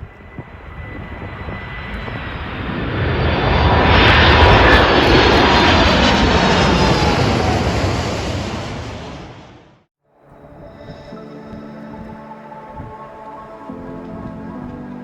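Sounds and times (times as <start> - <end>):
jet passing by: 0.0 - 9.9.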